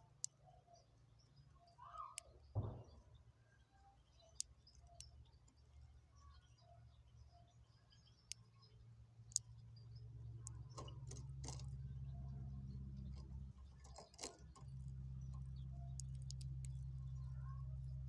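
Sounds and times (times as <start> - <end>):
steady low hum: 0.0 - 18.0
light clicks and taps: 7.9 - 18.0.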